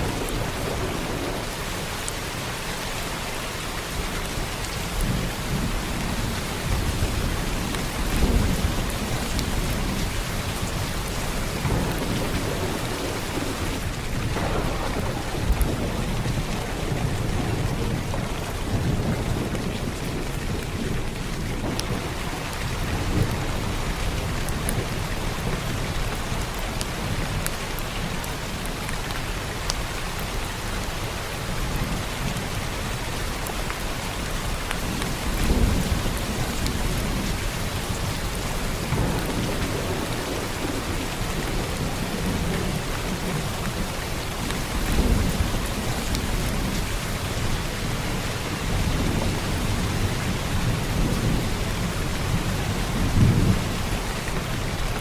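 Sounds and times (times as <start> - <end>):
heavy rain falling: 0.0 - 55.0
thunder rumbling: 0.0 - 55.0.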